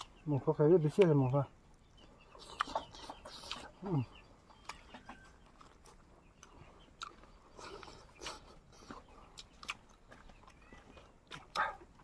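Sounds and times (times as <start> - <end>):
person chewing food: 0.0 - 0.2, 1.7 - 12.0
mouth clicks and smacks: 2.3 - 4.9, 5.9 - 10.6, 11.2 - 12.0.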